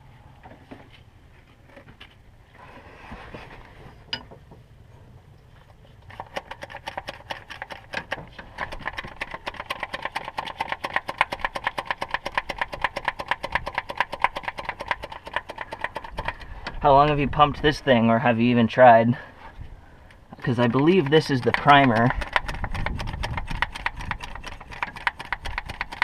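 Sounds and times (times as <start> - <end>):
rapid mechanical clicking: 6.1 - 16.8, 20.4 - 26.0.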